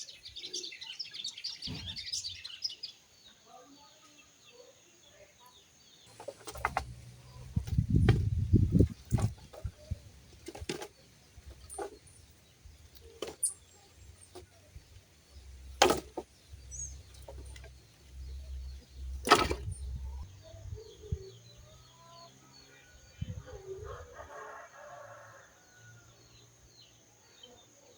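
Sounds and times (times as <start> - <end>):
sharp cracks or knocks: 19.2 - 20.0.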